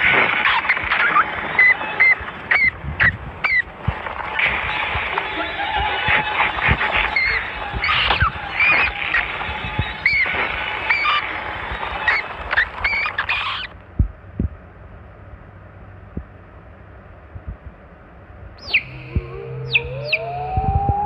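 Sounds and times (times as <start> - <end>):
sharp falling shrieks: 0.0 - 3.7, 4.4 - 13.8, 18.6 - 21.0
low hum: 0.0 - 21.0
hissy bird-like calls: 0.3 - 3.8, 4.6 - 13.8, 18.6 - 21.0.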